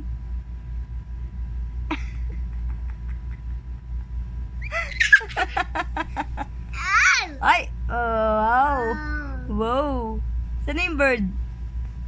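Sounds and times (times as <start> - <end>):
steady low hum: 0.0 - 12.0
baby squeaking and squealing: 4.6 - 5.4, 6.8 - 7.4.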